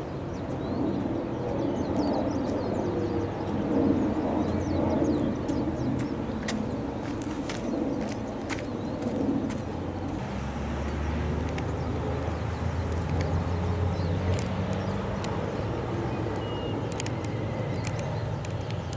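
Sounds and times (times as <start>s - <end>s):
engine drone of passing motor: 0.0s - 18.9s
sharp clicks: 11.4s - 13.4s, 14.0s - 15.4s, 16.3s - 18.9s.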